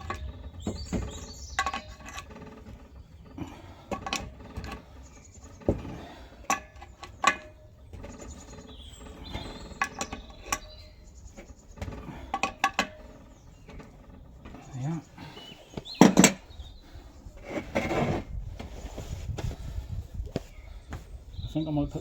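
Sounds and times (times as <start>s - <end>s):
hand tools clinking on metal: 0.0s - 16.4s.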